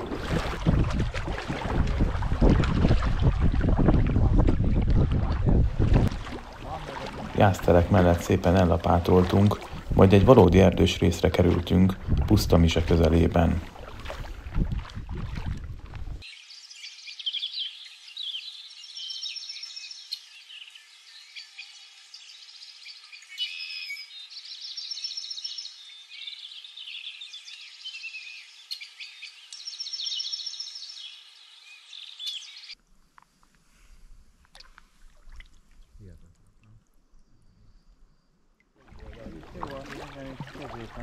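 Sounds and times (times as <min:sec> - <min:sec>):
birds singing trills and chirps: 0:16.2 - 0:32.8.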